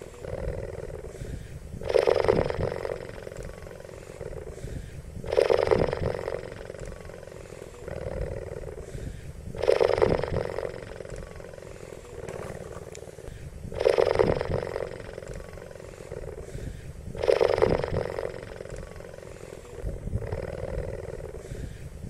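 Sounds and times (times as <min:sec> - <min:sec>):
cheetah rasping: 0:00.0 - 0:22.0.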